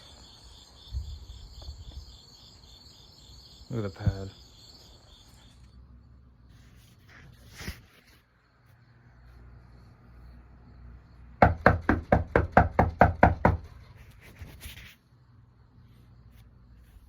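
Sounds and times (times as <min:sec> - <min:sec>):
rapid sharp knocks: 0:11.4 - 0:13.7.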